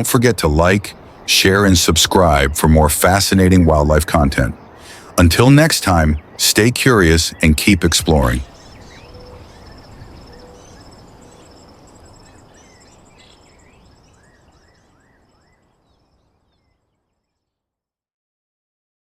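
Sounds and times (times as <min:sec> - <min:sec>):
soft background hiss: 0:00.0 - 0:17.2
bird chirps: 0:00.9 - 0:17.5
insects trilling: 0:07.8 - 0:14.8.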